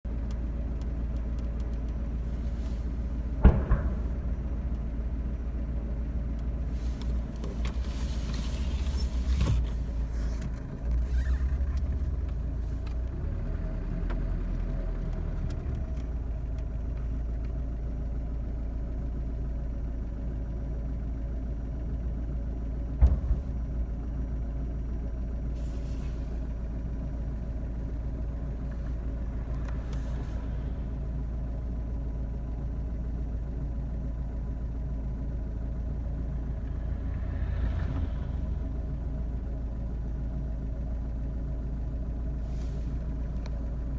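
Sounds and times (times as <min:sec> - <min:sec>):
low rumble: 0:01.7 - 0:09.2, 0:22.9 - 0:43.9
explosion bang: 0:03.3 - 0:05.7.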